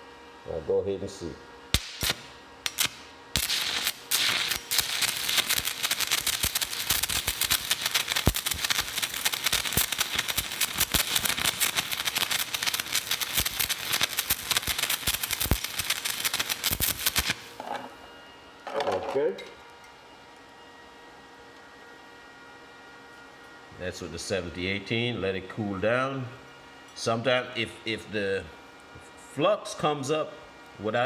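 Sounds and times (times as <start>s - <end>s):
welding arc crackling: 1.7s - 17.6s.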